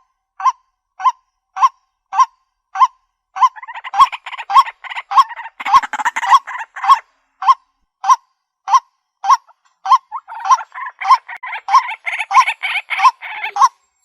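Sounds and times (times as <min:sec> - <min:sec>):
rough bird chatter: 0:03.4 - 0:07.1, 0:09.2 - 0:14.0
waterhen kwak calls: 0:03.4 - 0:07.6, 0:09.2 - 0:13.8.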